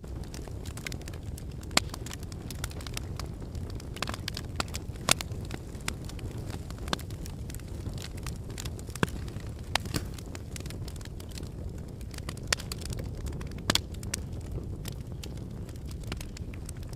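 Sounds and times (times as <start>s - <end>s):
burning logs crackling and popping: 0.0s - 16.9s
low rumble of flames: 0.0s - 16.9s.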